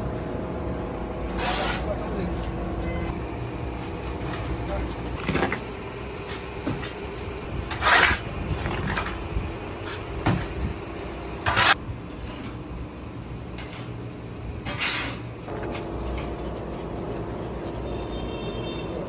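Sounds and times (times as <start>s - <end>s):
steady low hum: 0.0s - 18.4s
rough scraping strokes: 1.3s - 1.9s, 7.7s - 8.2s.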